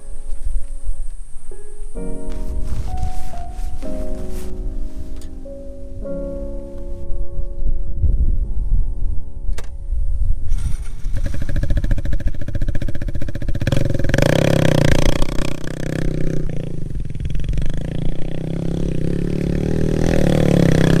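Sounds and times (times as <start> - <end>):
motorcycle engine revving: 10.5 - 21.0.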